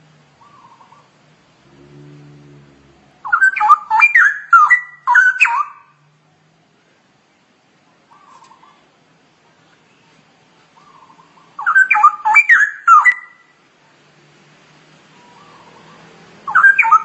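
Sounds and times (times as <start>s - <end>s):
bird singing whistled phrases: 3.2s - 5.9s, 11.6s - 13.4s, 16.5s - 17.0s.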